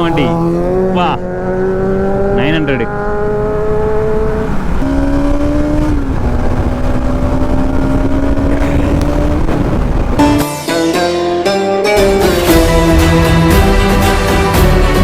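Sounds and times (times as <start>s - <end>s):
motorcycle engine accelerating: 0.0s - 10.9s
wind rush: 3.4s - 10.5s.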